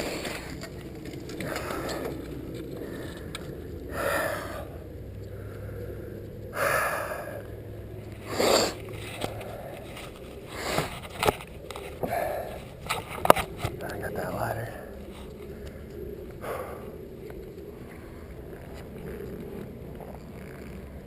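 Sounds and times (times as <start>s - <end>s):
tyres scraping: 0.0s - 6.8s, 8.0s - 16.0s
bike tyres rolling on wet trail: 0.0s - 21.0s.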